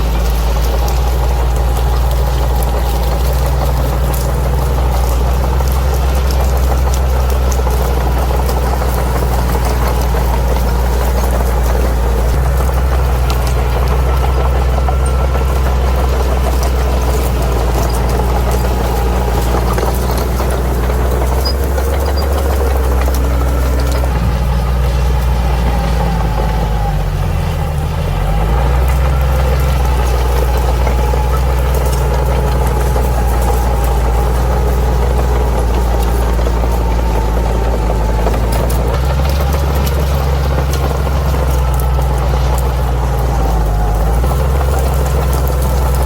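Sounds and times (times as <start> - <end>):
bulldozer diesel engine running: 0.0 - 46.0.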